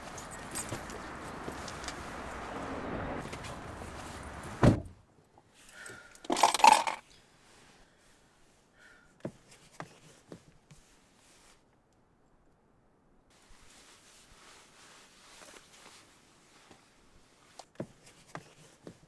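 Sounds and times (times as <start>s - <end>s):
clattering rattle: 6.3s - 7.0s.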